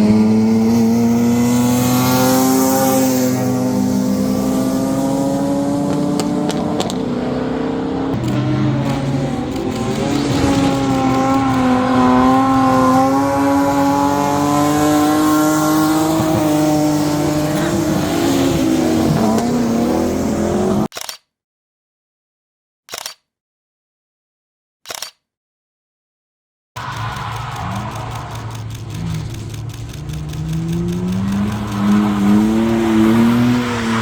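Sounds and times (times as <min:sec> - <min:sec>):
car engine at high revs: 0:00.0 - 0:20.9, 0:26.8 - 0:34.0.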